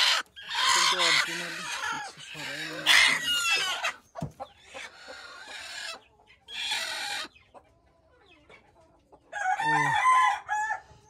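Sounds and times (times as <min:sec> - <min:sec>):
hens clucking and squawking: 0:00.0 - 0:11.0.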